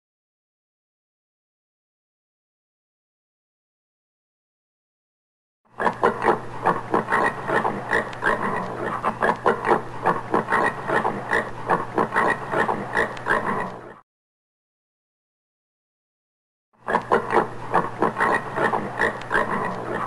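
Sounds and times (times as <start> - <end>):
warthog grunting: 16.9 - 20.0.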